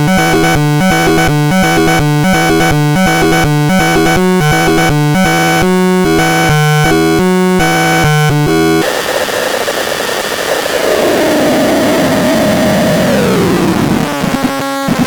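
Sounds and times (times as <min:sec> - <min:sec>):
harsh noisy synth sliding downward: 0:08.6 - 0:14.2.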